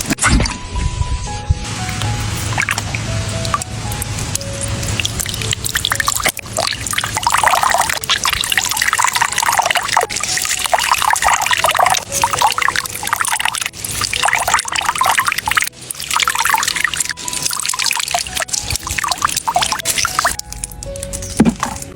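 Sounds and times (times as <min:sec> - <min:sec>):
liquid pouring and splashing: 0:02.1 - 0:21.9.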